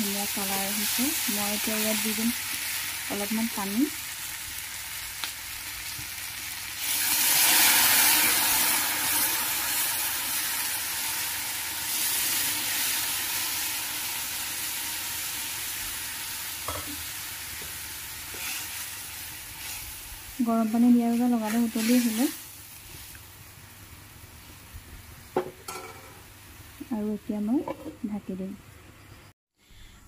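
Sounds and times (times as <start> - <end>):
curry boiling: 0.0 - 24.0
water hissing in hot pan: 0.0 - 24.8
meat and potatoes sizzling: 0.0 - 27.2.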